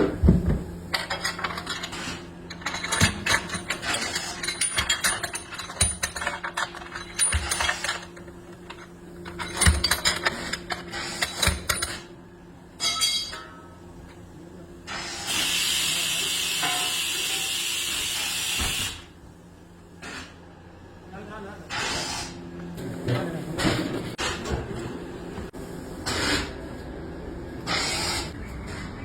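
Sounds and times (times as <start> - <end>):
metal tools clanking: 0.9 - 12.1, 12.8 - 13.8.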